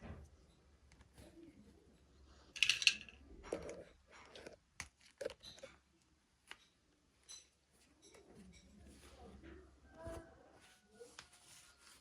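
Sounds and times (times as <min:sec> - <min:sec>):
hard plastic pieces clicking: 0:02.6 - 0:03.2.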